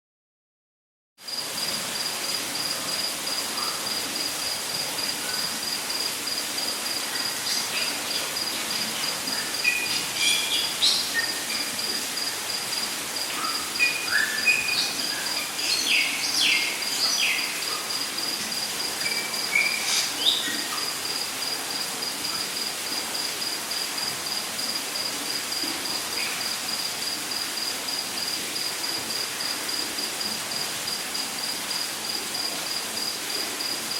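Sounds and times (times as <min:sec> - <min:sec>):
falling water rushing hiss: 0:01.3 - 0:33.9
pulsing high insect trill: 0:01.3 - 0:33.9
bird chirps and whistles: 0:13.4 - 0:15.0.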